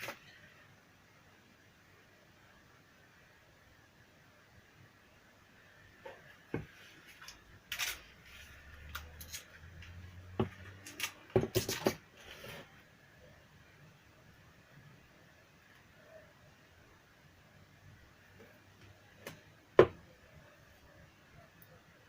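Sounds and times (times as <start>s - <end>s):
plastic parts clicking and clattering: 10.5s - 12.0s.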